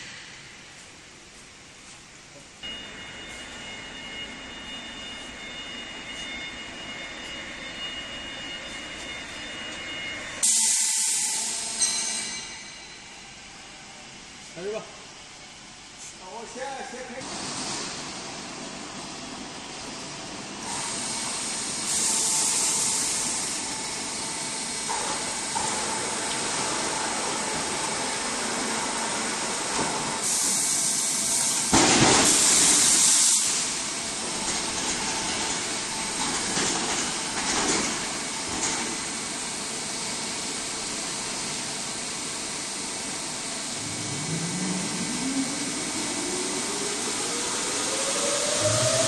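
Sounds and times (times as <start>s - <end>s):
sawmill machinery running: 17.2s - 49.0s.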